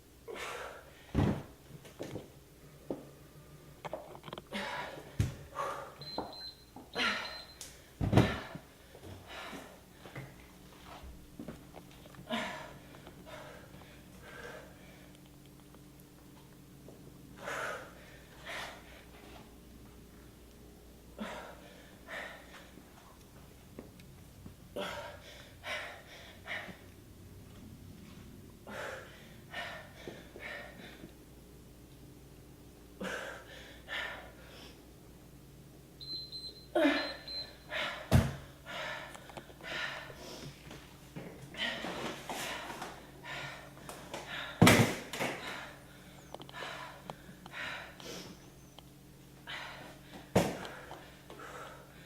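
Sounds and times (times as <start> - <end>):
heavy exertion breaths: 4.5 - 6.0, 12.2 - 15.2, 17.4 - 19.4, 21.2 - 22.8, 28.6 - 31.1, 36.8 - 40.6, 41.5 - 48.4, 49.4 - 52.0.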